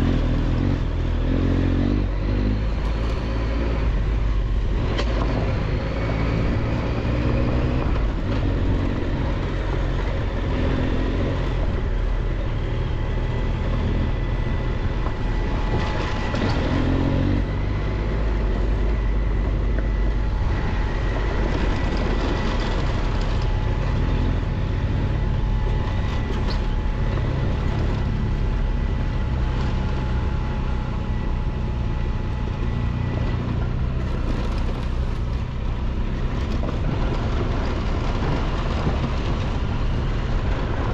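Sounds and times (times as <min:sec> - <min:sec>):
motorcycle engine rumble: 0:00.0 - 0:40.9
tyres on dirt road: 0:00.0 - 0:40.9
wind noise: 0:00.0 - 0:40.9.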